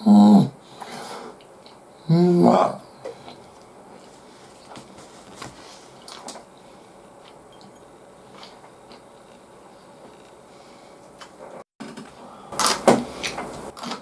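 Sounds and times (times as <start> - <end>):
quiet chewing: 5.7 - 10.4.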